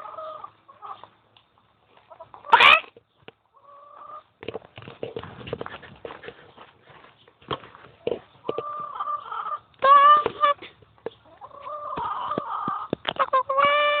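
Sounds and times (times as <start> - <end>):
chicken squawking clucks: 0.0 - 1.1, 2.0 - 4.3, 8.3 - 14.0.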